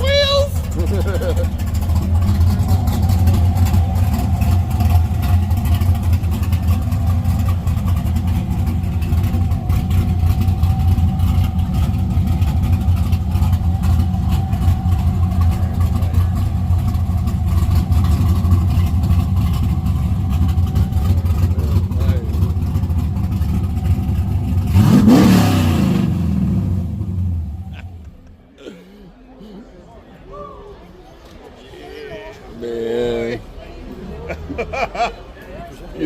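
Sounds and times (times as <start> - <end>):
car engine idling: 0.0 - 28.5.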